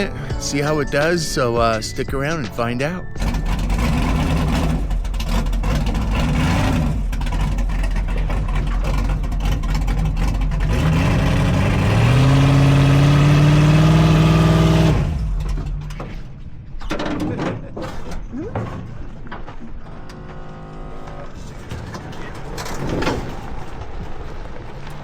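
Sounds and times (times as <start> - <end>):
race car engine revving: 3.2 - 16.3.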